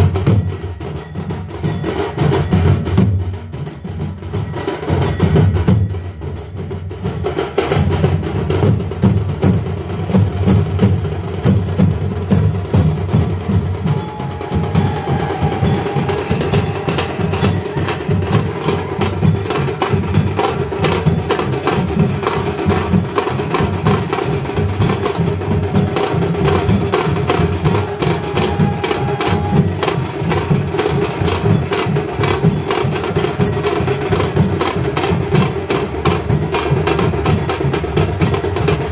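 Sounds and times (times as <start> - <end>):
drums: 0.0 - 38.9
held note: 13.5 - 19.4.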